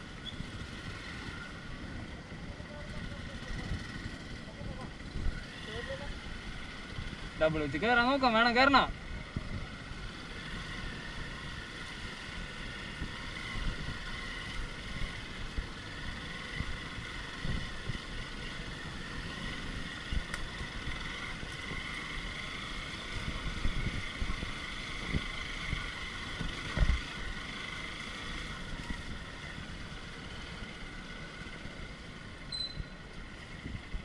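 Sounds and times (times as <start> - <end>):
off-road motorcycle engine: 0.0 - 34.0
wind buffeting microphone: 12.4 - 27.5.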